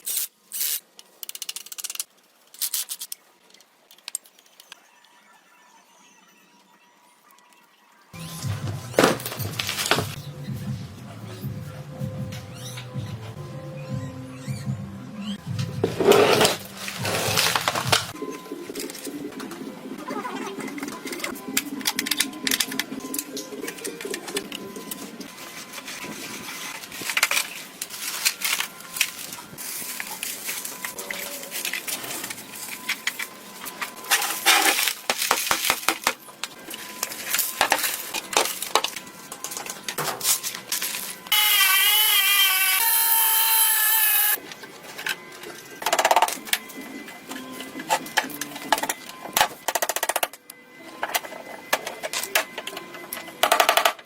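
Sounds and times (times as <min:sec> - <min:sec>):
power tool whining: 0:41.3 - 0:44.4.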